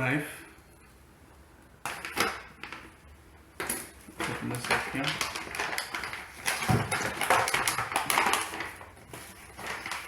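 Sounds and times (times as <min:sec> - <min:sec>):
crackling and clicking handling noise: 0:01.8 - 0:03.0, 0:03.6 - 0:10.0.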